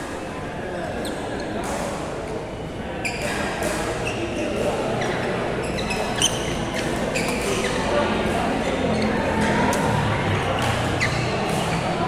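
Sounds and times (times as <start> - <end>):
shoes squeaking on court floor: 3.0 - 9.2, 10.6 - 12.0
rackets hitting shuttlecock: 9.7 - 12.0.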